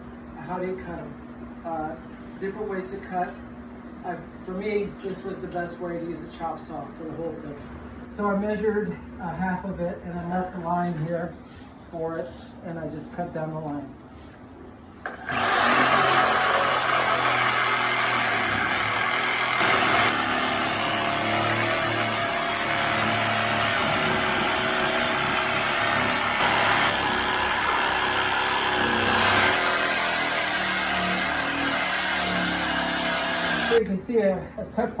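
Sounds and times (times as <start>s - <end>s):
reciprocating saw cutting wood: 15.1s - 33.8s.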